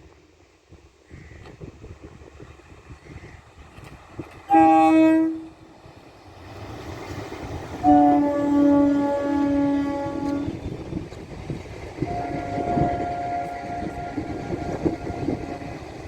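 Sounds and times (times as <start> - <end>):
train rumble: 0.0 - 16.0
train horn blasts: 4.5 - 5.6, 7.8 - 10.8, 12.0 - 15.9.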